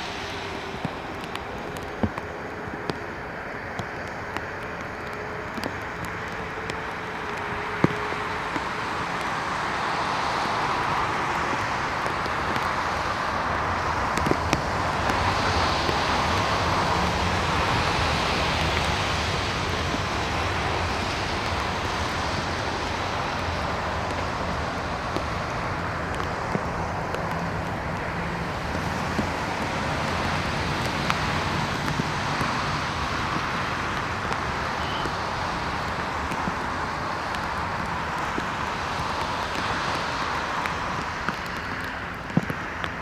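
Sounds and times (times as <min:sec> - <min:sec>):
jet engines at takeoff power: 0:00.0 - 0:43.0.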